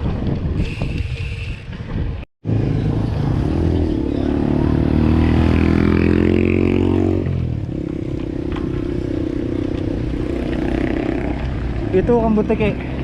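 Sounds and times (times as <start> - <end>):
vehicle engines on road: 0.0 - 13.0.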